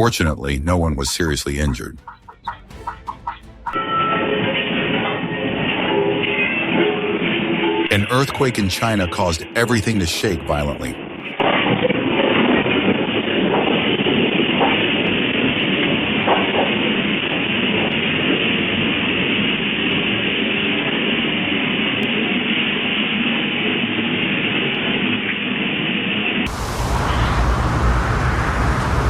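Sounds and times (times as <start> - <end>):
building rumbling and rattling: 26.5 - 29.0.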